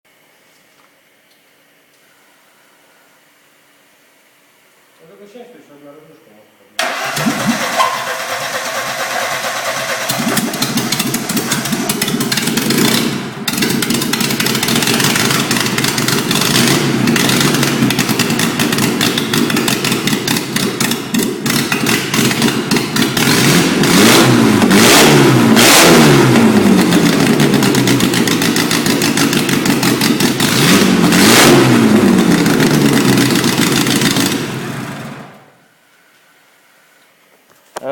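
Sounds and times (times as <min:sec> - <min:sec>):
car engine revving: 0:06.8 - 0:35.4.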